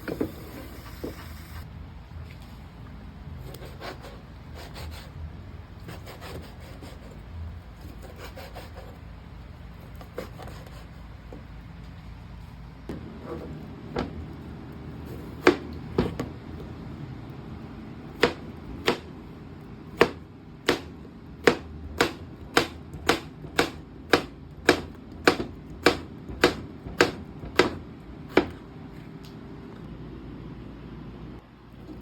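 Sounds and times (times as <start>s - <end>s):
knife chopping on cutting board: 15.1s - 16.3s, 18.2s - 19.1s, 20.0s - 28.6s.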